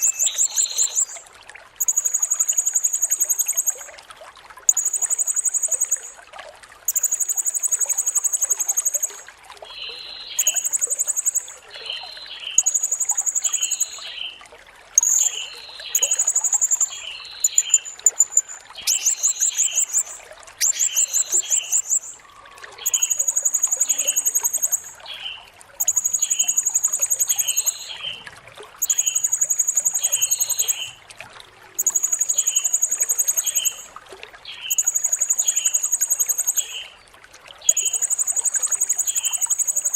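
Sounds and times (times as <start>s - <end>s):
parrot shrill buzzy calls: 0.0s - 1.2s, 15.0s - 22.2s
parrot soft chirps: 0.0s - 1.2s, 1.8s - 3.9s, 4.7s - 6.2s, 6.9s - 9.2s, 9.9s - 14.2s, 15.0s - 22.2s, 22.8s - 28.1s, 28.8s - 31.0s, 31.8s - 33.9s, 37.7s - 39.9s.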